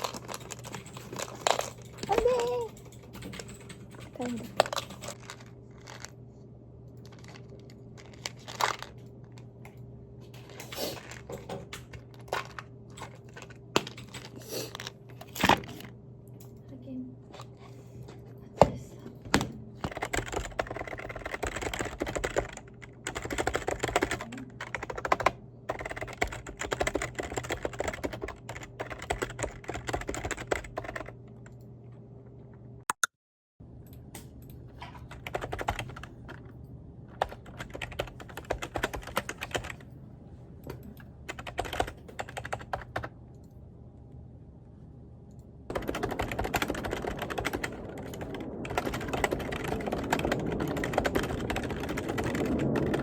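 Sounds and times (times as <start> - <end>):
typing on computer keyboard: 0.0 - 5.2, 19.8 - 31.2, 35.0 - 36.4, 37.2 - 39.8, 40.8 - 43.1, 45.7 - 53.0.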